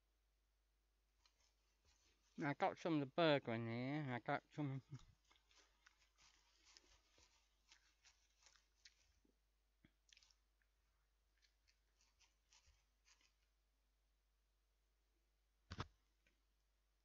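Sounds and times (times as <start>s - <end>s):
person chewing burger: 5.0s - 13.4s.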